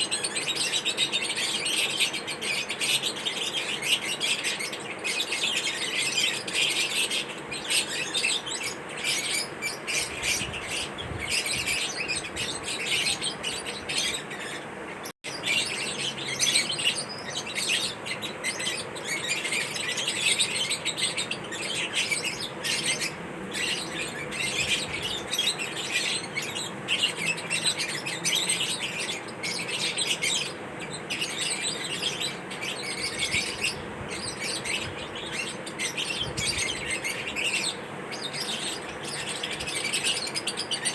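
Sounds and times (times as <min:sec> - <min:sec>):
lovebirds chirping: 0:00.0 - 0:40.9.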